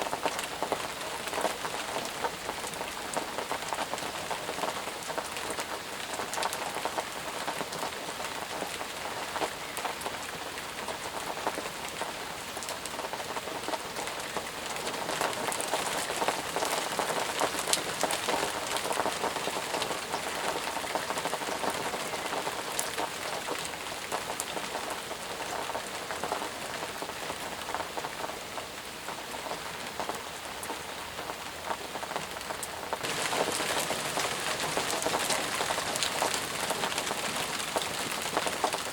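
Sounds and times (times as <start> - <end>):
steady rain falling: 0.0 - 38.9
raindrop impacts: 31.7 - 38.9.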